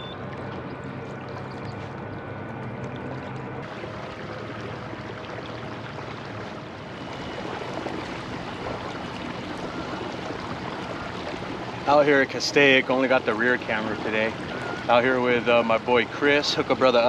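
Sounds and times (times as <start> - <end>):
water rushing past kayak: 3.6 - 17.0.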